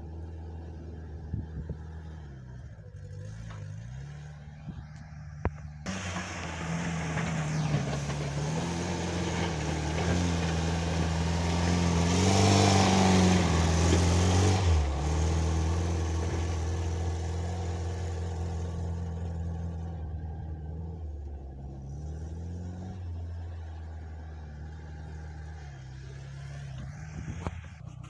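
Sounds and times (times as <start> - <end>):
tractor engine running under load: 4.7 - 21.4
blade pushing snow: 5.9 - 15.0.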